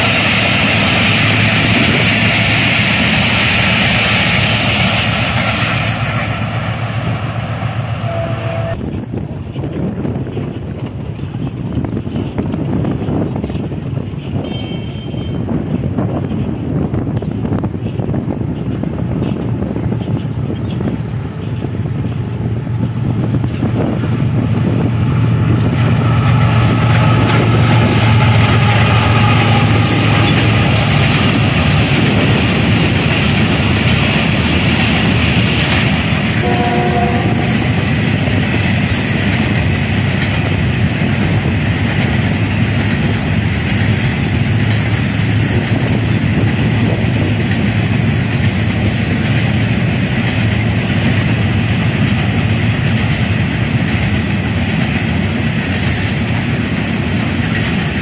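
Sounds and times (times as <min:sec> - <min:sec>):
deep locomotive rumble: 0:00.0 - 0:58.0
locomotive horn blast: 0:07.9 - 0:08.8, 0:25.9 - 0:31.1, 0:36.3 - 0:37.9
wheels clattering on rails: 0:08.8 - 0:58.0.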